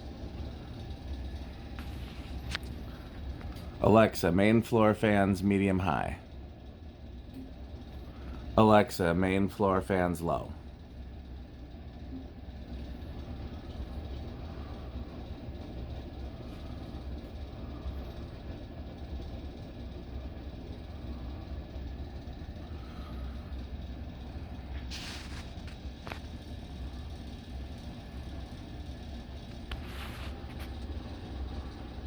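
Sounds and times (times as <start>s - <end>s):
ceiling fans humming: 0.0s - 32.0s
brief hiss: 24.8s - 25.6s.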